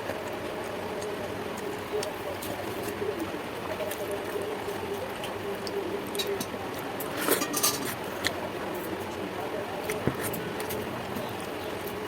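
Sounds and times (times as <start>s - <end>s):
dish clinks: 7.4s - 7.9s.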